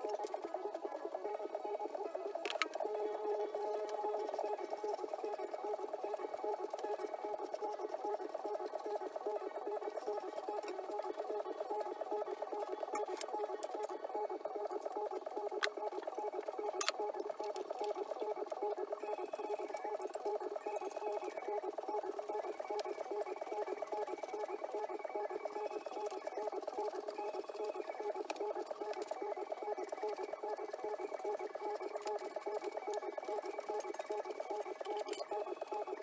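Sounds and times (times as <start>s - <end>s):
tinny fluttering radio sound: 0.0s - 36.0s.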